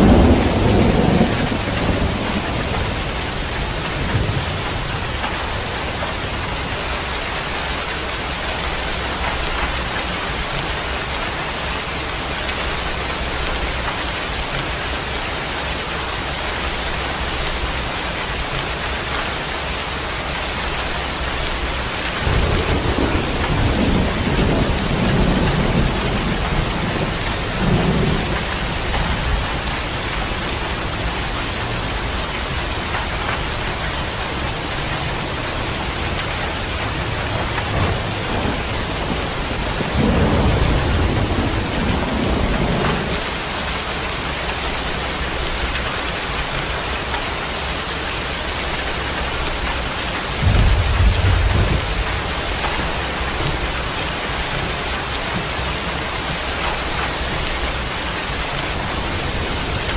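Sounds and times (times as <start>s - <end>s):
rumble of thunder: 0.0s - 7.9s, 21.4s - 43.7s, 49.4s - 59.9s
steady rain falling: 0.0s - 59.9s.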